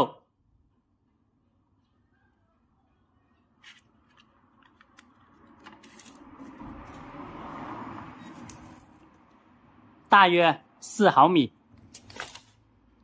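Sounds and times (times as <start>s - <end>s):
rubbing and handling noise: 3.5s - 7.1s.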